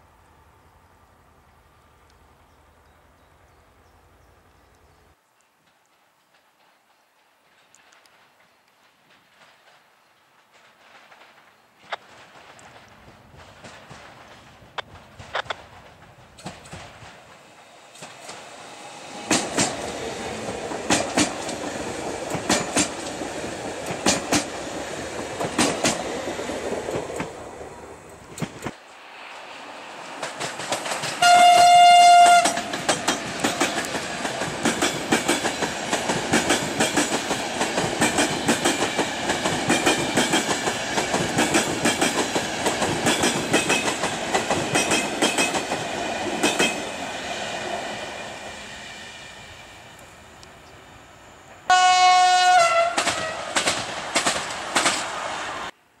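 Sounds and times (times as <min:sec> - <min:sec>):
train wheels clacking over rail joints: 0:10.5 - 0:27.4, 0:30.1 - 0:46.9, 0:52.6 - 0:55.2
train rumble: 0:10.6 - 0:51.7, 0:52.5 - 0:55.8
train horn blast: 0:31.2 - 0:32.7, 0:51.7 - 0:53.6.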